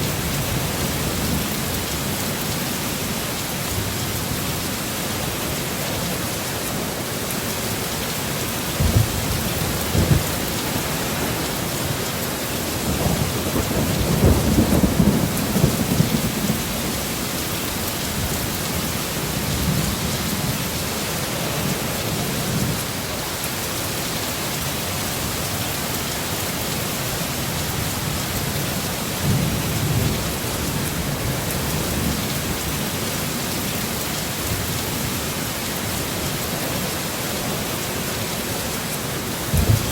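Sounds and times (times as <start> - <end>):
heavy rain falling: 0.0 - 39.9
low thunder rumbles: 8.6 - 17.3, 39.5 - 39.9.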